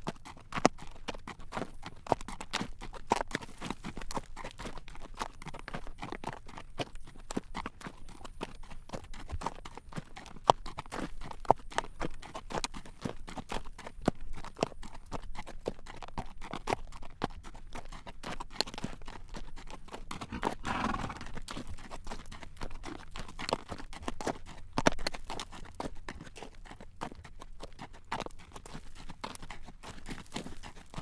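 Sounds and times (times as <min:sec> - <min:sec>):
horse hooves clip-clopping on road: 0:00.0 - 0:31.0.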